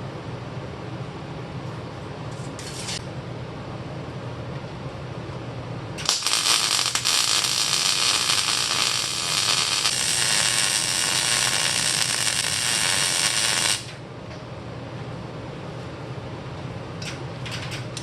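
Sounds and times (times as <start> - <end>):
arc welding crackling hiss: 6.0 - 14.0.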